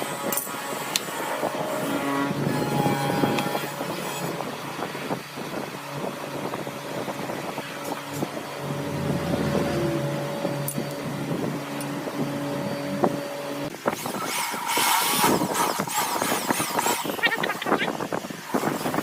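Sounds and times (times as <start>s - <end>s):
grinding noise: 0.2s - 19.0s
motor humming: 1.7s - 19.0s.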